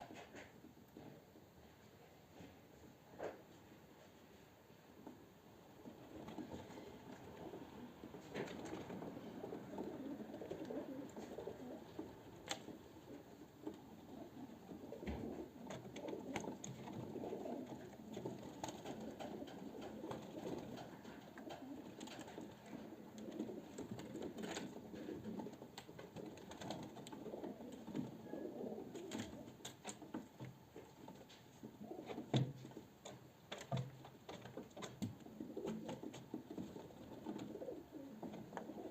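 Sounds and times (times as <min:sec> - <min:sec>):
pigeons cooing: 0:06.0 - 0:30.0, 0:31.6 - 0:32.6, 0:34.8 - 0:38.9.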